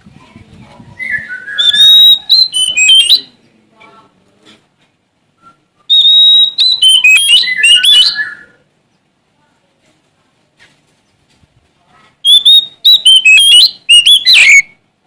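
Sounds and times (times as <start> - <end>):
bird singing: 1.0 - 3.6, 5.8 - 9.0, 12.2 - 14.8.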